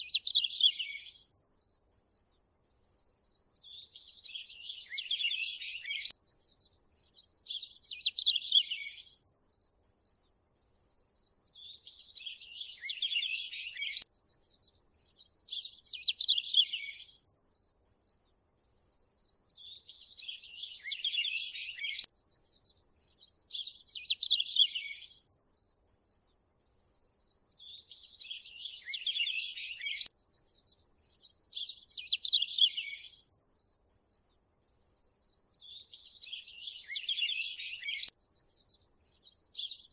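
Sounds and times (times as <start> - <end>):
bird chirping: 0.0 - 1.2, 3.4 - 6.2, 7.1 - 9.2, 11.3 - 14.0, 15.1 - 17.2, 19.4 - 22.1, 23.1 - 25.2, 27.3 - 30.1, 31.2 - 33.2, 35.4 - 38.1, 39.2 - 39.9.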